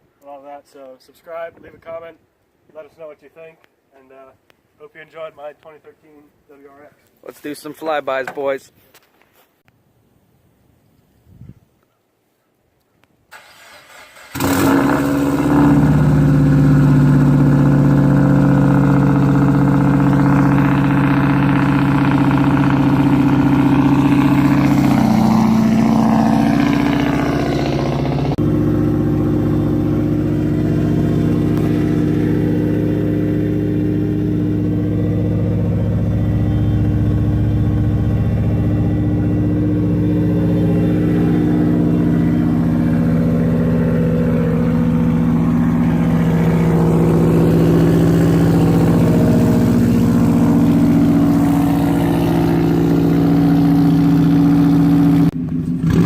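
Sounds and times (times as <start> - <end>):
car exhaust roaring: 14.2 - 56.0.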